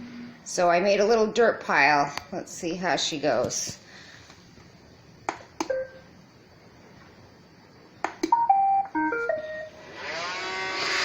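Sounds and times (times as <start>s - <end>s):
button clicks: 8.0s - 8.6s.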